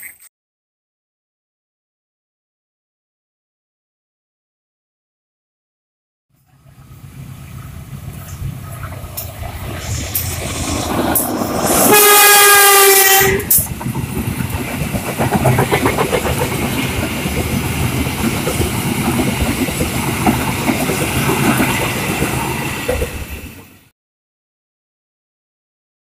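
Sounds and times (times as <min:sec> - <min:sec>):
train wheels clacking on rails: 0:08.1 - 0:23.8
train horn blast: 0:11.7 - 0:13.6.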